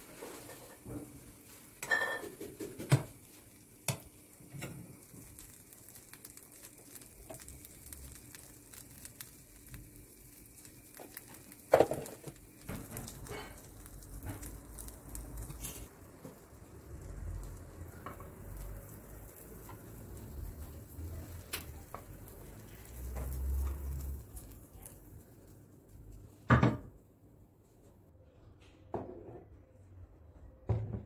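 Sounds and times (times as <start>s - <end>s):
dishes and utensils clinking: 1.8s - 3.1s.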